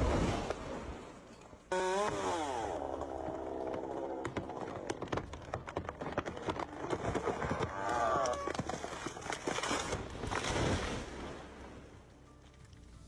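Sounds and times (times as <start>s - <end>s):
chainsaw cutting wood: 1.7s - 7.7s.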